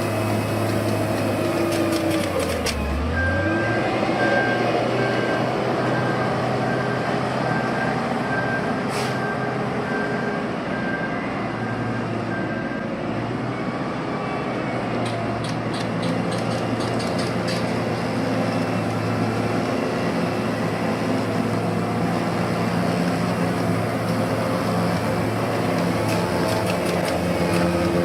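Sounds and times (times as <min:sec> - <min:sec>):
heavy construction machinery running: 0:00.0 - 0:28.0
reversing alarm beeping: 0:02.8 - 0:15.0.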